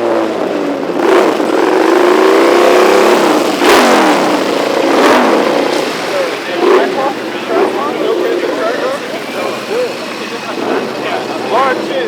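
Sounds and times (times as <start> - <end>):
car engine revving: 0.0 - 12.0
sharp crack: 1.0 - 7.1.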